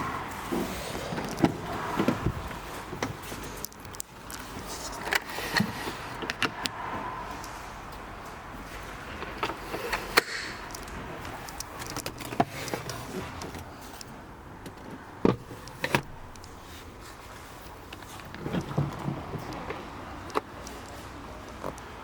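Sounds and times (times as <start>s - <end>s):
car door fittings clicking: 9.4s - 16.6s.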